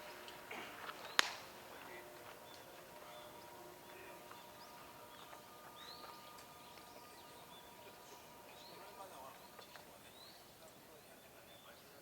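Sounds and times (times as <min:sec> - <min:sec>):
distant bird chirps: 0:02.4 - 0:11.8.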